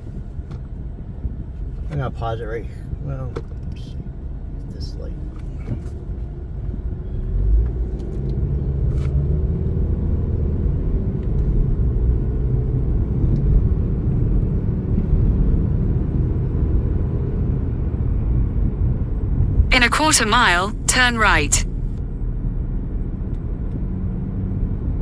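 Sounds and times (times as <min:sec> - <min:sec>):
car engine and road rumble: 0:00.0 - 0:12.3.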